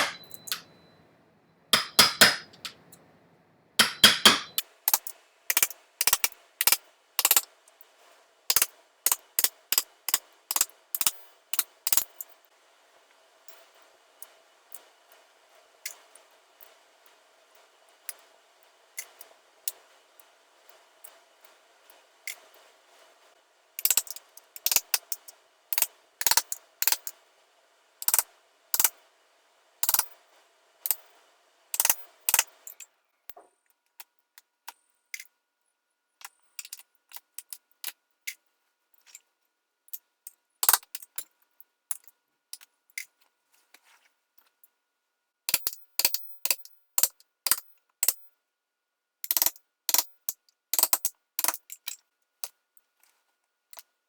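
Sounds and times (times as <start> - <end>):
hammer tapping metal tool: 0.0 - 1.0, 1.8 - 3.0, 3.8 - 7.5, 8.5 - 12.3, 23.8 - 27.2, 28.0 - 29.0, 29.8 - 30.1, 31.8 - 33.5
staples clicking loose: 3.8 - 7.5, 8.5 - 12.2, 23.8 - 25.2, 28.0 - 28.2, 28.8 - 29.0, 29.8 - 30.1, 31.8 - 32.8, 49.2 - 50.1.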